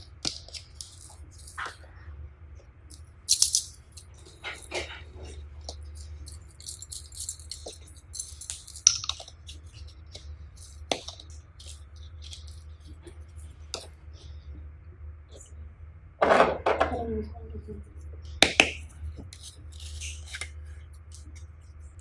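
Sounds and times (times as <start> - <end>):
low steady hum: 0.0 - 22.0
clicks crackles and rattles: 0.1 - 1.8, 2.9 - 13.1.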